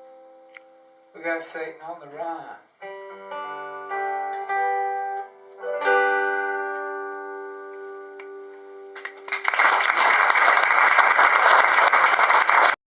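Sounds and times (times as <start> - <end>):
guitar and keyboard chords: 0.0 - 9.5
audience applauding: 9.0 - 12.8.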